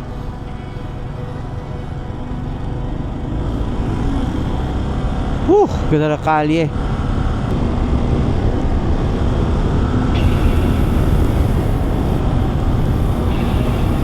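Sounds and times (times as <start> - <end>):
wind rush on microphone: 7.0 - 14.0
motorcycle engine running: 10.2 - 14.0.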